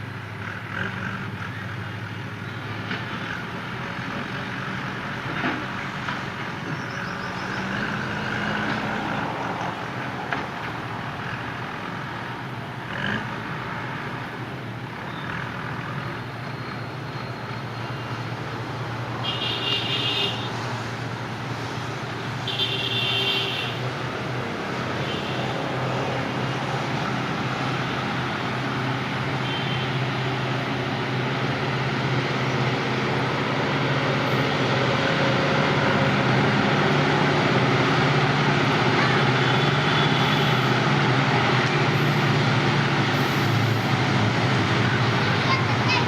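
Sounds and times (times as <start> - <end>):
diesel engine running: 23.7 - 46.0.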